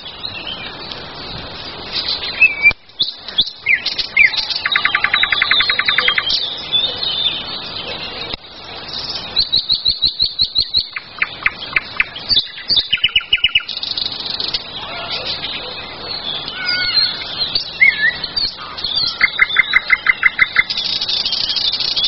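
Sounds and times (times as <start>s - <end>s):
songbirds singing: 0.0s - 22.0s.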